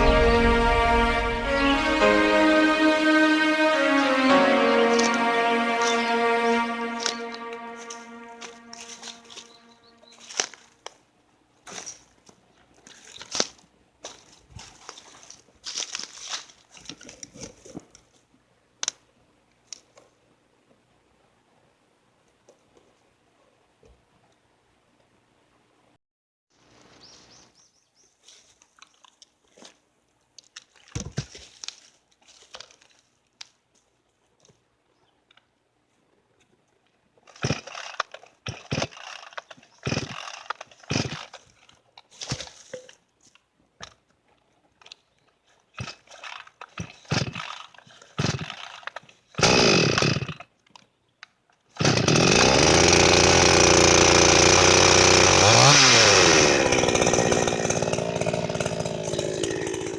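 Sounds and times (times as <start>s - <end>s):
chainsaw starter cord pulls: 37.3s - 41.8s, 45.8s - 50.4s, 51.8s - 59.9s
chainsaw engine running: 39.8s - 41.3s, 49.4s - 50.3s, 51.8s - 59.9s.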